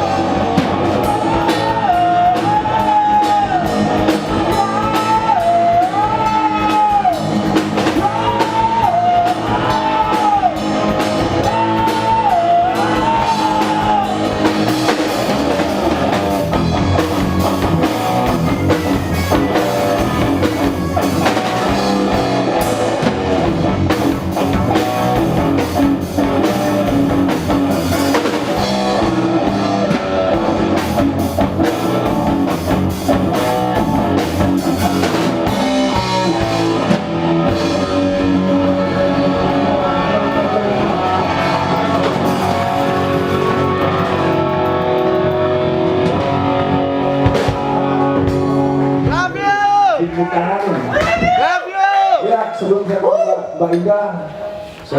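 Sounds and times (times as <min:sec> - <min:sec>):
live rock band playing: 0:00.0 - 0:52.2
lead guitar melody bending: 0:12.7 - 0:49.1.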